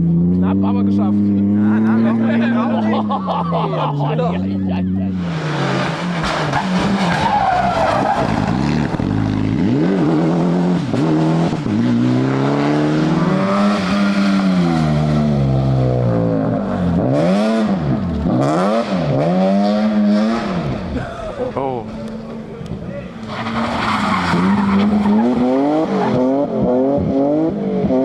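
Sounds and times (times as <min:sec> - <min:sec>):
rally car engine revving: 0:00.0 - 0:28.0.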